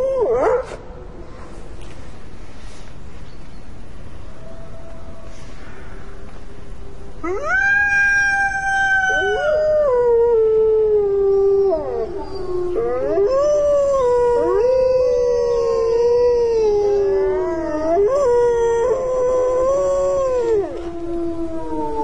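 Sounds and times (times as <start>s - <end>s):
steady hiss: 0.6s - 22.0s
wolves howling in chorus: 7.2s - 22.0s.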